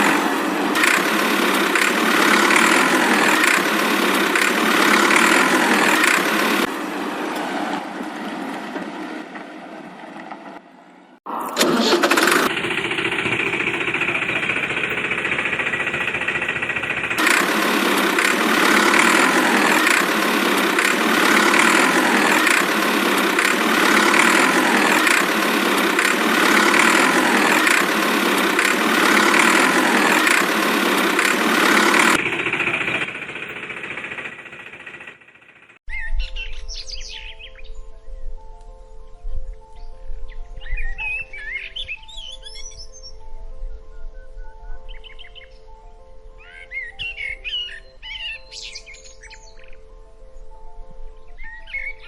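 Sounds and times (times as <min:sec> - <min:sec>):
tractor engine knocking: 0:00.0 - 0:06.8, 0:11.6 - 0:35.8.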